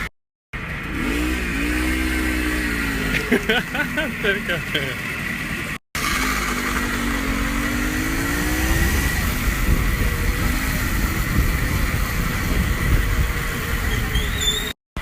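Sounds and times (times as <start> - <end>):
moped engine pulling away: 0.6 - 14.7
wind rumbling on microphone: 7.4 - 14.7.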